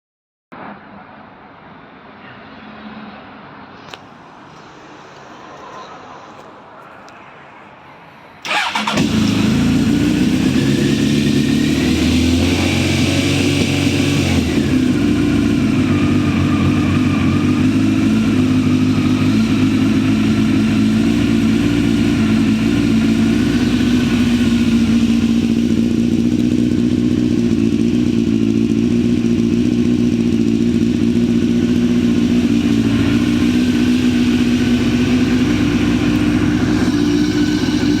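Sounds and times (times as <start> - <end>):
motorcycle engine starting and idling: 8.4 - 38.0.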